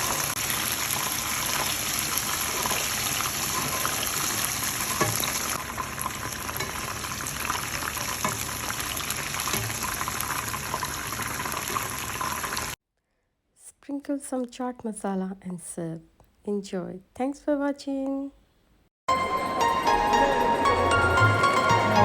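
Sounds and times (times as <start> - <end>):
deep-frying sizzle with crackling pops: 0.0 - 12.8.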